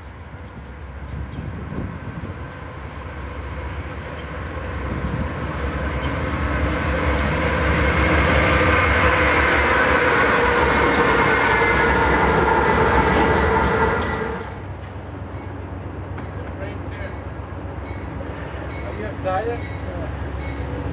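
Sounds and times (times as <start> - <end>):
passenger train rumble: 0.0 - 20.9
train wheel clicks: 3.6 - 14.6.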